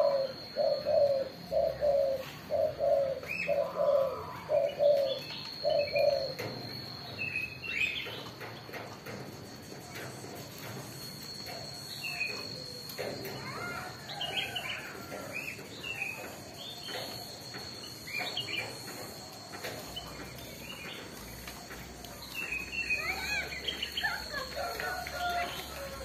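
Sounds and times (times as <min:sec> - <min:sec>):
birds chirping: 0:00.0 - 0:26.0
steady high-pitched tone: 0:09.1 - 0:26.0.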